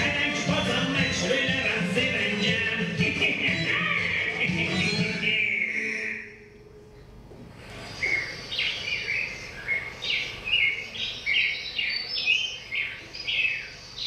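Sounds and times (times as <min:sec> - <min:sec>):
birdsong chirps and whistles: 0:07.8 - 0:14.0.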